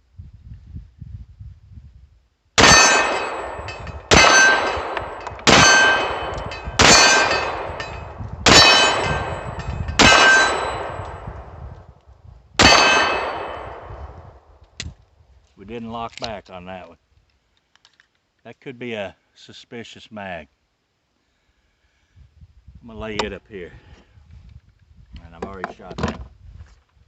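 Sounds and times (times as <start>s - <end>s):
metallic ringing: 2.6s - 11.3s, 12.6s - 13.8s
pistol shots: 2.6s - 11.3s, 12.6s - 14.0s.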